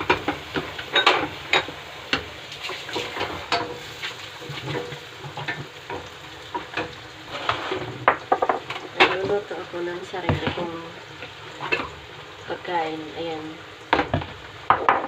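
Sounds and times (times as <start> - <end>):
food sizzling in hot oil: 0.0 - 15.0
utensil scraping a pan: 2.5 - 9.4.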